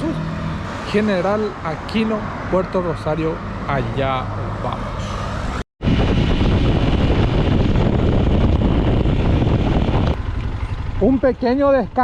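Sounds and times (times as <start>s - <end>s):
wind buffeting microphone: 5.8s - 11.1s.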